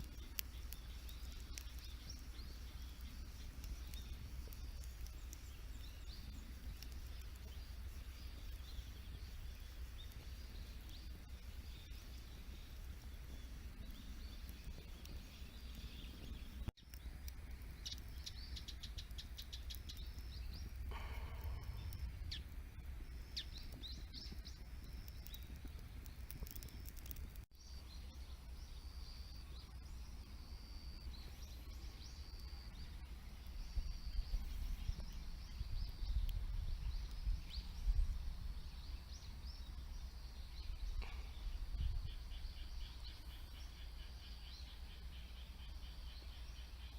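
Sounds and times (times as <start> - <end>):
faint ticks: 0.0 - 27.5
steady low rumble: 0.0 - 27.5
birds chirping: 0.0 - 46.9.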